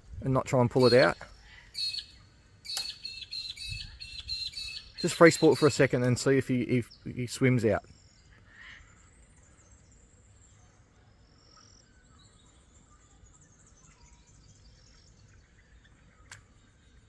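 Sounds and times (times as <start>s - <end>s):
sharp click: 2.7s - 3.1s.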